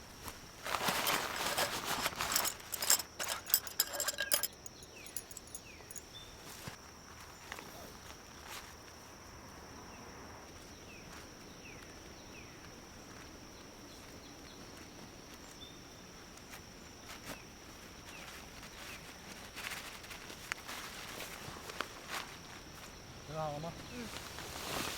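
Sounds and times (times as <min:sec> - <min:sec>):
insects droning: 0:00.0 - 0:24.9
light clicks and knocks: 0:02.1 - 0:06.0.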